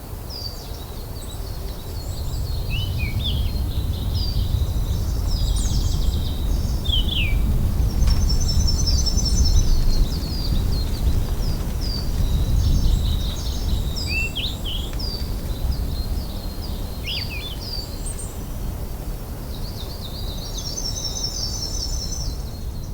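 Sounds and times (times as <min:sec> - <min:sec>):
steady low rumble: 0:01.9 - 0:17.1.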